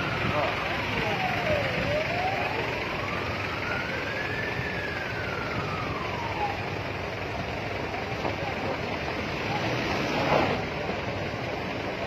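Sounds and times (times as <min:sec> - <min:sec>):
siren wailing: 0:00.0 - 0:07.1
steady background noise: 0:00.0 - 0:12.0.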